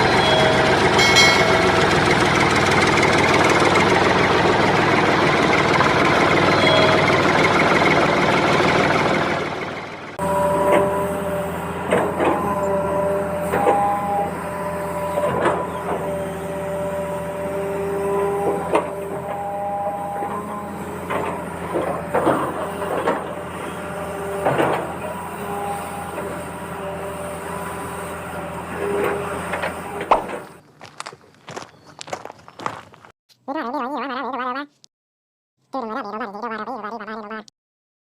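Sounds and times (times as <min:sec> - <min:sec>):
sharp clanks and knocks: 0:00.0 - 0:04.8, 0:11.8 - 0:19.5, 0:20.2 - 0:26.9, 0:27.7 - 0:32.8
high whining tones: 0:00.0 - 0:30.6
machinery engine running: 0:00.0 - 0:33.1.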